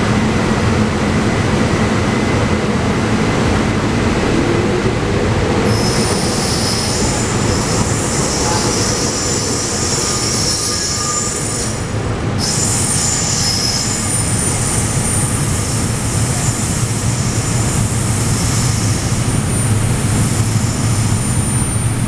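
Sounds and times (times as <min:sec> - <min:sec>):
train wheels squealing: 0:05.6 - 0:22.0.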